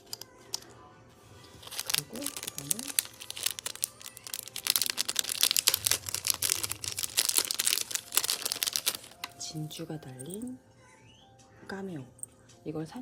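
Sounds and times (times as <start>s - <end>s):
plastic packaging crinkling: 1.4s - 10.4s.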